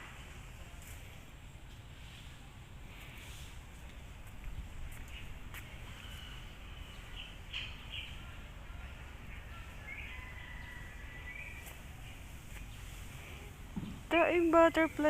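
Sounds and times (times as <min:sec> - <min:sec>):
birds chirping: 0:04.9 - 0:15.0.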